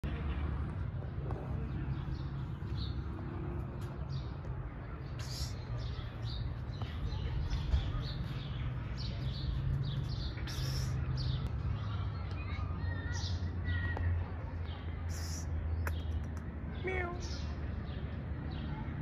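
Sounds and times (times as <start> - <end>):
small birds chirping: 0.0 - 19.0
bursts of hiss: 10.4 - 11.1.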